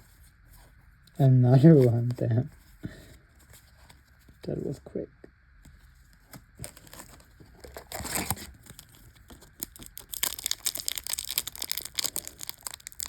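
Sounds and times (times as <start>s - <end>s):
foil wrapper crinkling and tearing: 6.6s - 13.0s.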